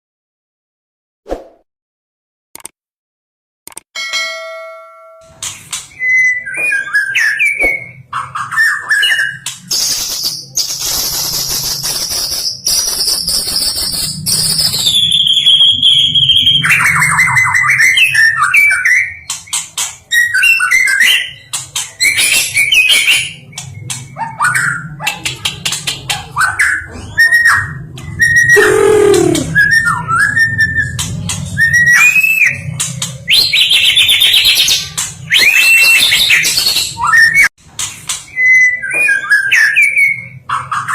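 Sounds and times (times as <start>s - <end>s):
bird singing whistled song: 5.9s - 19.3s, 35.3s - 37.5s.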